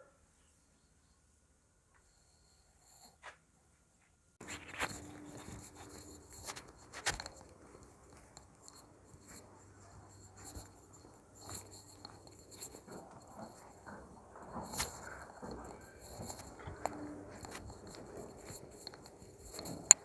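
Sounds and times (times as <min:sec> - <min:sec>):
pen scratching on paper: 0:04.4 - 0:07.5, 0:08.2 - 0:20.0.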